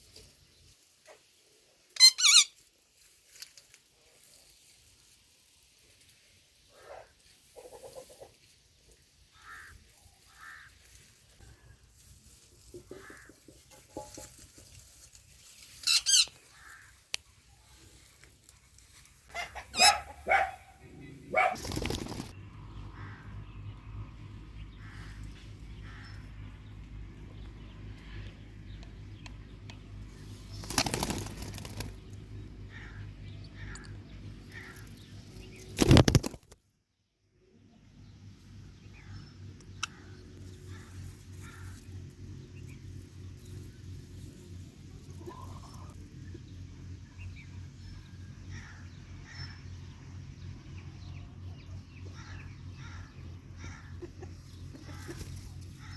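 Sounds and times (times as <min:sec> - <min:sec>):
parakeet harsh screech: 0:02.0 - 0:02.5
parrots flapping wings: 0:21.4 - 0:22.4, 0:30.4 - 0:32.2, 0:35.5 - 0:36.6.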